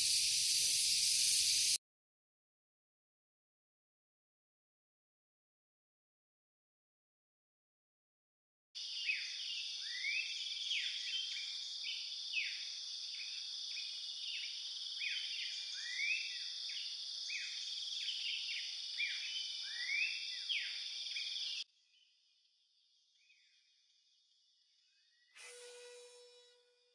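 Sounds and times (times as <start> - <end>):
high-pitched insect drone: 0.0 - 1.8, 25.4 - 26.8
bird calls: 8.9 - 21.6.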